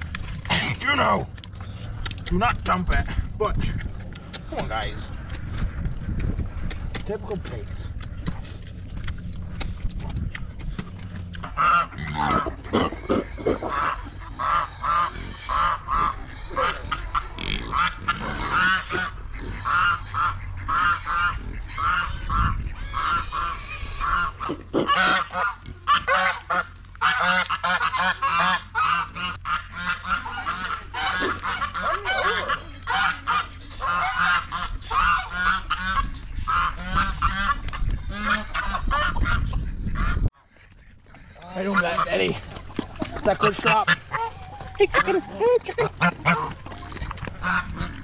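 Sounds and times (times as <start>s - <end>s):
waterfowl honking and calling: 11.4s - 48.0s.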